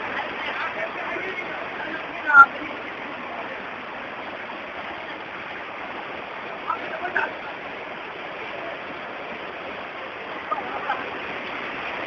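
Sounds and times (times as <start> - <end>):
heavy rain and rushing floodwater: 0.0 - 12.0.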